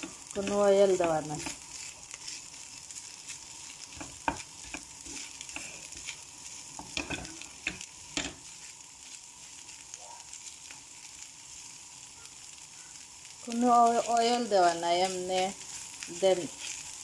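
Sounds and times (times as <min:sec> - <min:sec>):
fish sizzling in oil: 0:00.0 - 0:17.0.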